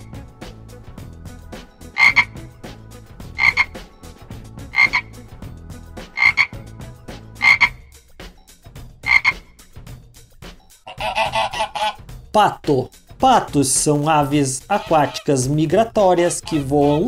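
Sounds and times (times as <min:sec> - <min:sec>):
frog croaking: 0:01.9 - 0:02.4, 0:03.3 - 0:03.8, 0:04.7 - 0:05.2, 0:06.1 - 0:06.6, 0:07.4 - 0:07.9, 0:09.0 - 0:09.5, 0:10.9 - 0:12.0, 0:16.2 - 0:16.7.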